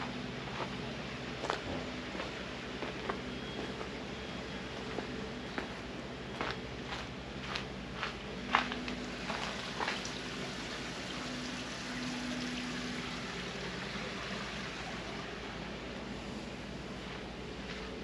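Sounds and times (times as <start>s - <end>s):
water rushing: 9.1s - 15.9s.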